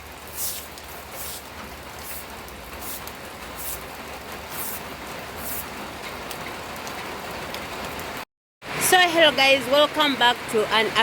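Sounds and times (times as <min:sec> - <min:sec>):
rain falling: 0:00.0 - 0:11.0
short high hiss: 0:00.3 - 0:01.4.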